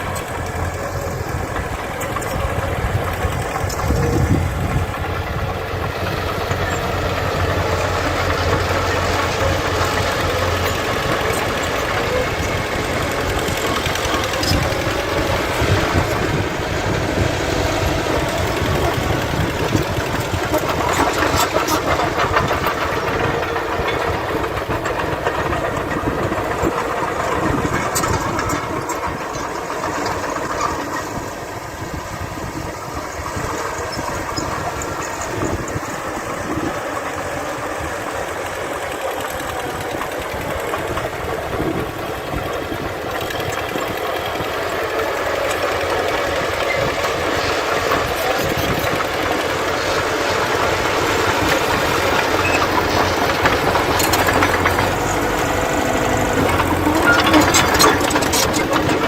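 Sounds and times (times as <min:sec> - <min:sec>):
diesel earthmoving machines running: 0:00.0 - 0:59.0.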